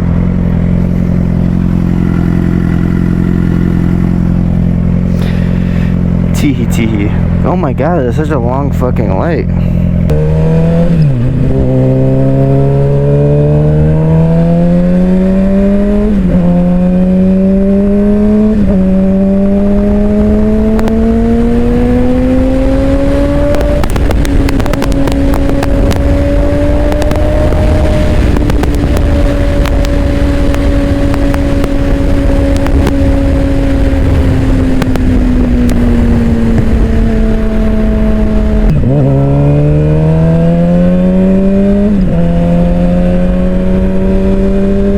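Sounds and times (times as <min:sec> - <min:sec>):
motorcycle engine accelerating: 0:00.0 - 0:44.9
wind rush: 0:14.0 - 0:44.9.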